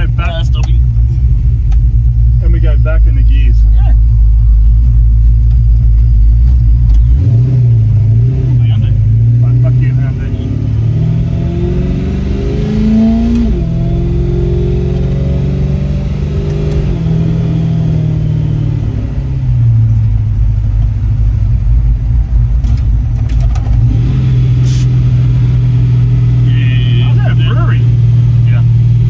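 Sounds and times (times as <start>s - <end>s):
car engine running under load: 0.0s - 29.0s.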